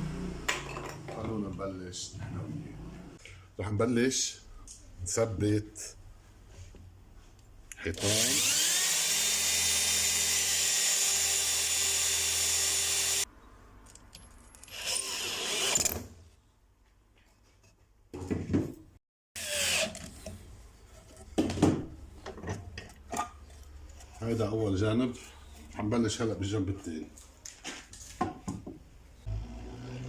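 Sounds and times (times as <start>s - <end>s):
electric drill driving screws: 8.0s - 13.2s, 14.7s - 16.0s, 19.4s - 20.0s.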